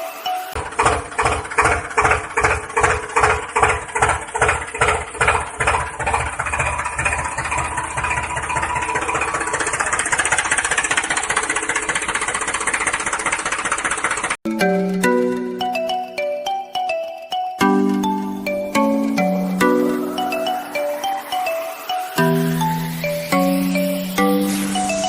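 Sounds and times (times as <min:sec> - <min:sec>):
tractor engine chugging: 0:00.5 - 0:17.0, 0:17.6 - 0:25.0.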